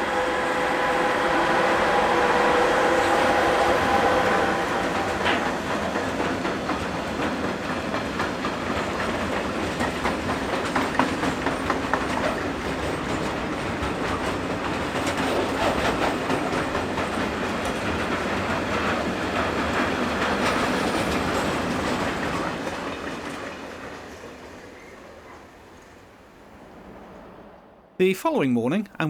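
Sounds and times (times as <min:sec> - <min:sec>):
freight train rumbling past: 0:00.0 - 0:24.6.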